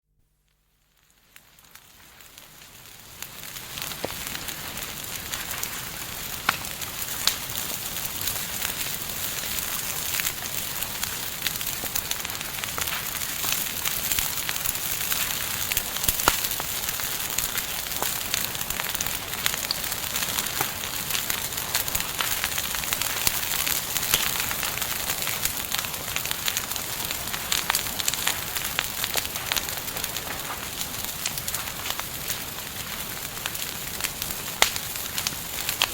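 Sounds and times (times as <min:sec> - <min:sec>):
campfire crackling and popping: 0:00.6 - 0:35.9.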